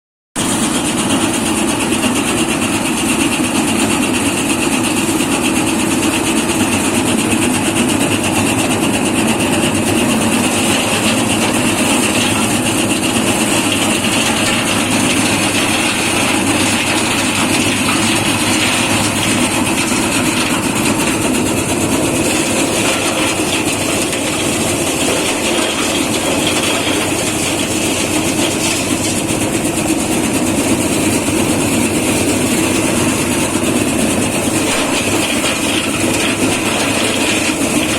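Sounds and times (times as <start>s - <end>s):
threshing machine running: 0.4s - 37.9s.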